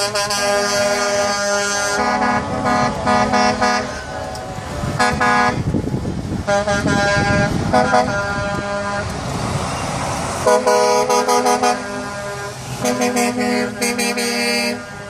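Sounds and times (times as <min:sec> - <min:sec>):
truck air horn blasts: 0:00.0 - 0:05.7, 0:06.4 - 0:09.2, 0:10.4 - 0:15.0
truck engines and tyres rumbling: 0:00.0 - 0:15.0.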